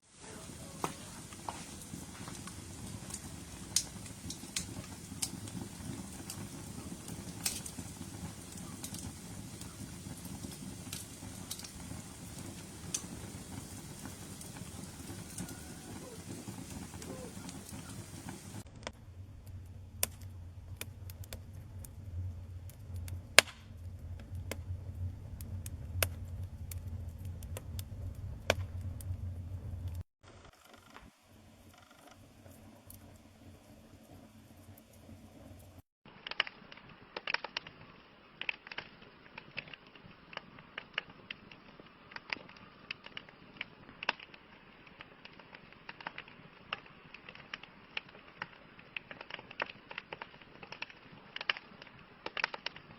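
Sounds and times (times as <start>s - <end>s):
campfire flames rumbling: 0.0s - 30.1s, 30.7s - 52.9s
fire crackling and popping: 0.1s - 52.9s.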